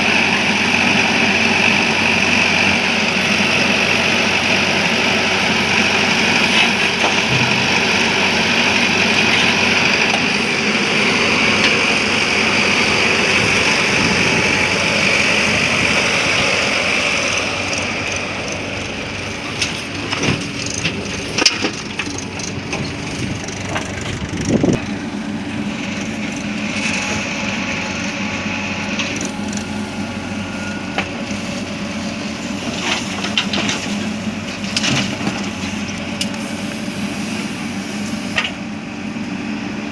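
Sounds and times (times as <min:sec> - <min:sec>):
diesel engine running: 0:00.0 - 0:39.9
knocks and clunks: 0:17.3 - 0:24.9.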